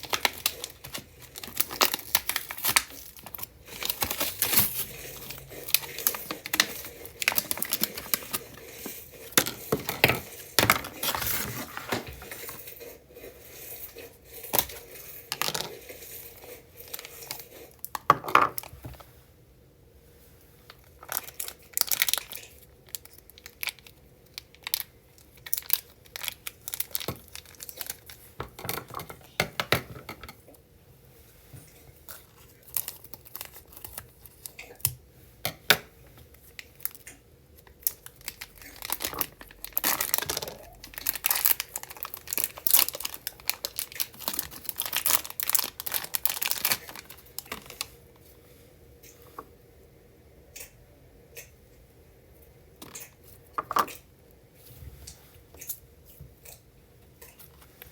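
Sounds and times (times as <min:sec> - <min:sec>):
slime crackling and popping: 0:00.0 - 0:08.6, 0:36.6 - 0:47.9.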